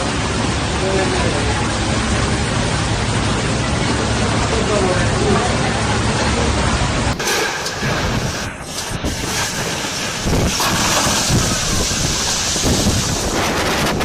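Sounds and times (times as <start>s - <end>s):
strong wind on microphone: 7.1s - 14.0s.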